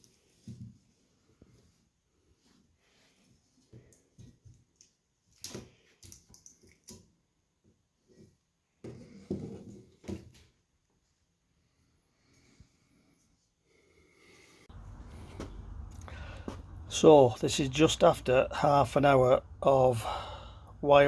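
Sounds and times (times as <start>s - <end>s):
handling knocks and rustles: 14.7s - 17.0s.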